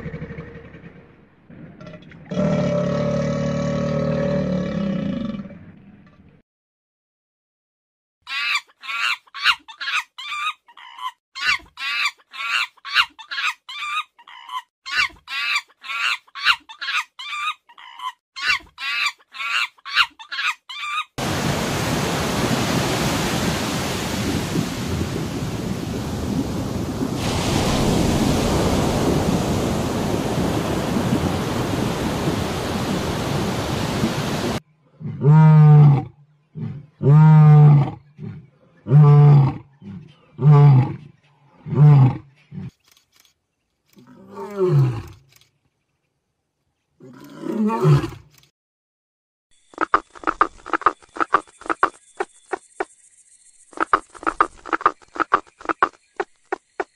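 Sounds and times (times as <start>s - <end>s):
lion roaring: 0.0s - 5.9s
underwater noise rushing: 21.2s - 34.6s.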